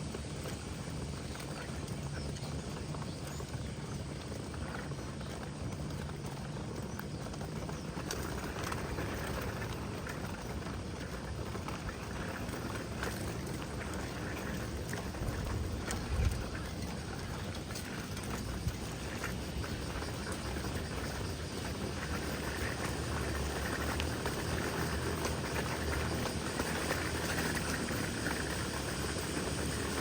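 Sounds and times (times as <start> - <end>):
wind: 0.0 - 30.0
water lapping: 11.7 - 23.9.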